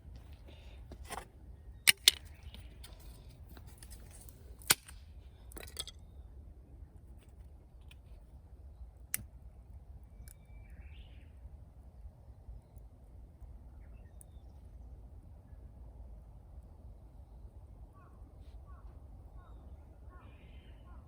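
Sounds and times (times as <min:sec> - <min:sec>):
firewood cracking: 0:03.6 - 0:05.9.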